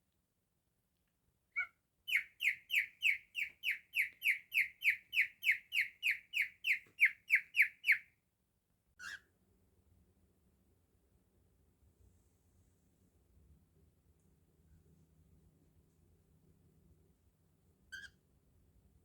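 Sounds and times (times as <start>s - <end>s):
cockatiel chirp: 1.6s - 8.0s, 9.0s - 9.3s, 17.9s - 18.2s
cockatiel whistled notes: 1.6s - 8.0s.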